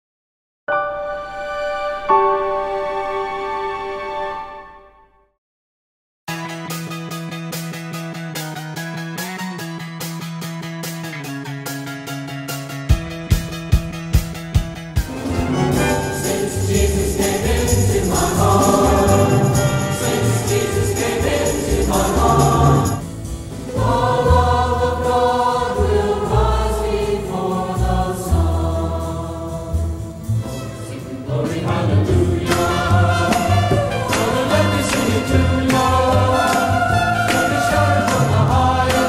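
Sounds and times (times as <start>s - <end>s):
choir singing with instruments: 15.1s - 39.0s
jingling percussion: 15.1s - 39.0s.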